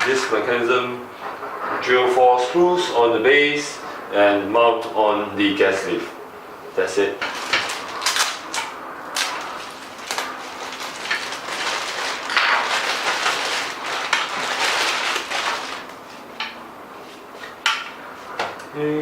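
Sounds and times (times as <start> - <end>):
packaging rustling: 7.3 - 16.3.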